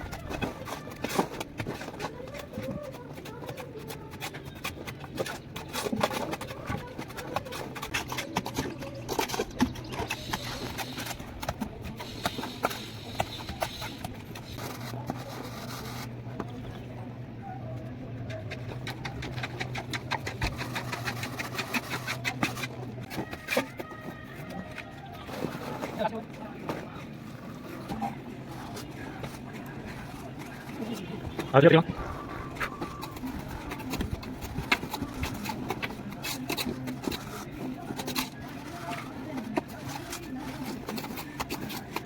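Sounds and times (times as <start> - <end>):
trowel scraping and clicking: 18.3 - 23.7.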